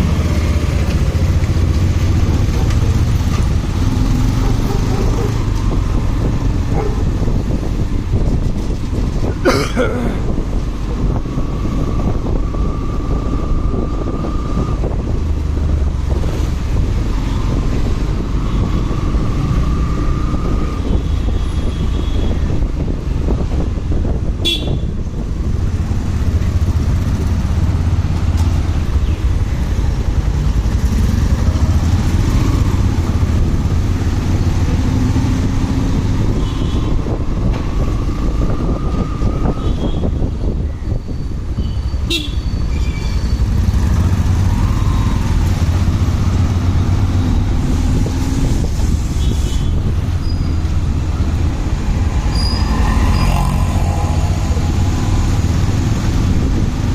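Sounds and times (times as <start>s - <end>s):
motorcycle engine and road rumble: 0.0s - 56.9s
vehicle horns: 24.4s - 25.0s, 39.5s - 40.3s, 41.6s - 43.3s.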